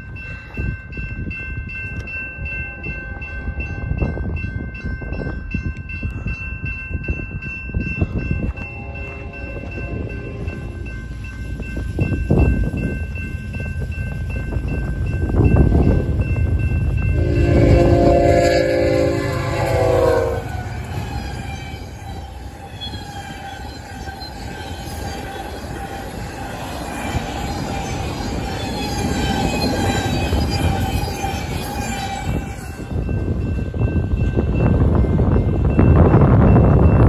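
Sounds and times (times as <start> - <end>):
train wheels rumbling on rails: 0.0 - 37.0
locomotive air horn: 17.1 - 22.4.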